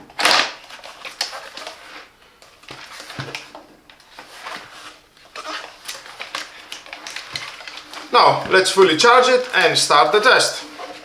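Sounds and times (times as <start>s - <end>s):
plastic scrape burst: 0.1s - 2.1s.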